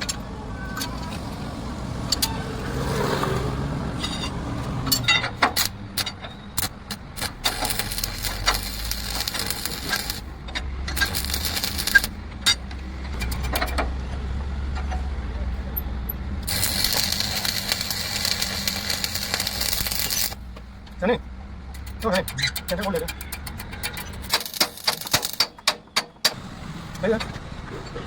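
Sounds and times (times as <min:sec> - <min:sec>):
metal clanking and knocking: 0:03.1 - 0:15.4, 0:21.7 - 0:27.9.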